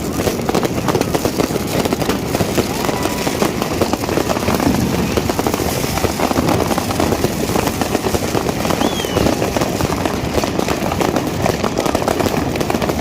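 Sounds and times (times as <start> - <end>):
fireworks crackling and banging: 0.0 - 13.0
falling firework whistle: 2.0 - 10.2.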